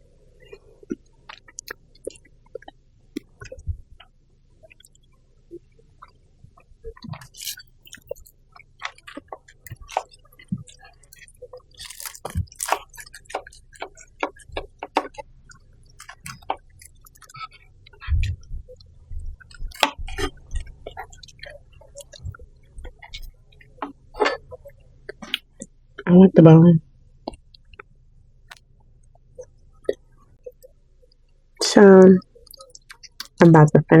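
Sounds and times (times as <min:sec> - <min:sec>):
person chewing and crunching: 0:00.8 - 0:03.6, 0:06.9 - 0:18.6, 0:19.4 - 0:26.1, 0:32.4 - 0:33.4
dull low bumps: 0:18.0 - 0:21.1.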